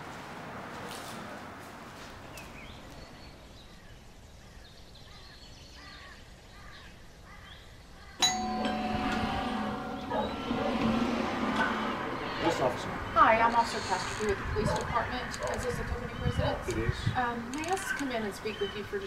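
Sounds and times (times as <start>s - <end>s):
outdoor background hiss: 0.0s - 19.0s
birds chirping: 2.2s - 19.0s
loud ringing tones: 8.2s - 13.2s.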